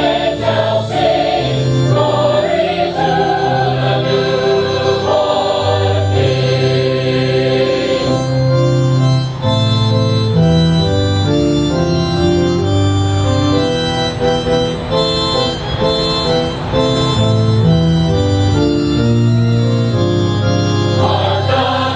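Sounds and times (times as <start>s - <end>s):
choir singing: 0.0s - 9.6s, 20.3s - 21.9s
keyboard held notes: 0.0s - 21.9s.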